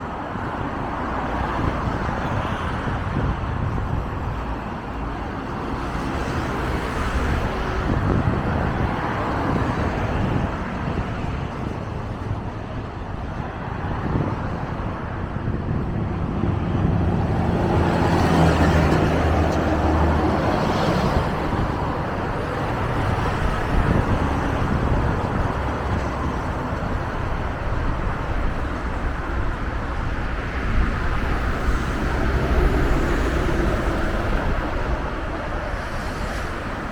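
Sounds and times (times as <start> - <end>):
bus diesel engine: 0.0 - 36.9
street traffic: 0.0 - 36.9.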